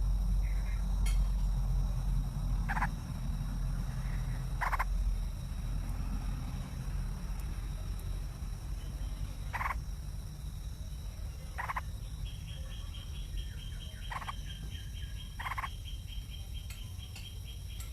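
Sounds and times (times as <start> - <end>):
low steady rumble: 0.0 - 17.9
harsh animal calls: 2.6 - 3.0, 3.9 - 5.0, 9.5 - 9.8, 11.5 - 12.0, 13.9 - 16.0.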